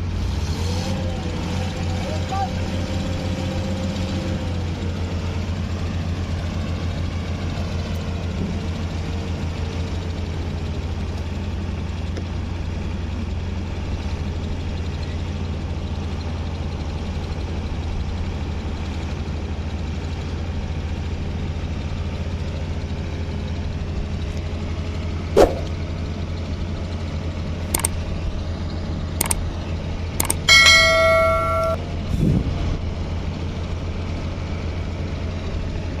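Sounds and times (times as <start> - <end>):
heavy vehicle engine droning: 0.0 - 36.0
sharp knock: 25.4 - 25.7
dull thud: 25.4 - 25.8
light clicks: 27.8 - 28.0, 30.2 - 30.5
metallic clang ringing: 30.2 - 31.8.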